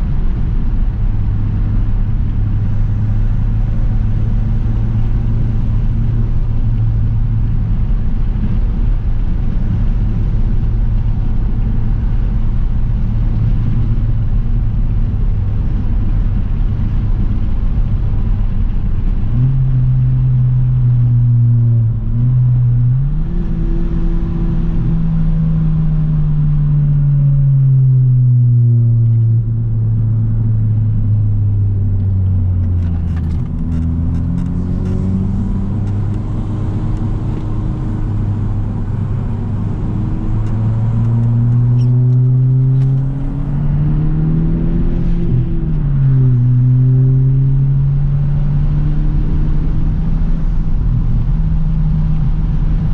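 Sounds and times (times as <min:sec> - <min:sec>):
car exhaust droning: 0:00.0 - 0:52.9.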